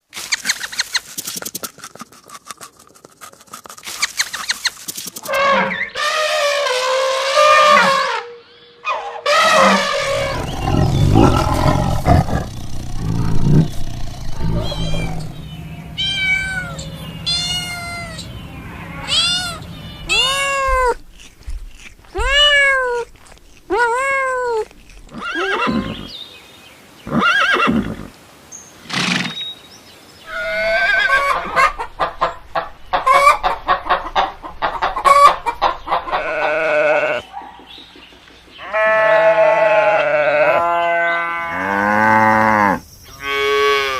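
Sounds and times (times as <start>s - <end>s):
rapid chattering animal calls: 9.5s - 23.4s
low rough animal rumble: 9.8s - 21.0s.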